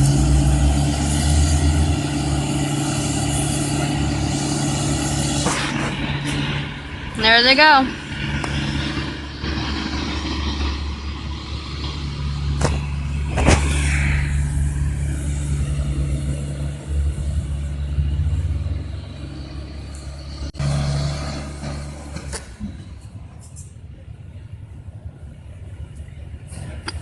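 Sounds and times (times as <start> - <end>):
heavy diesel machinery running: 0.0 - 27.0.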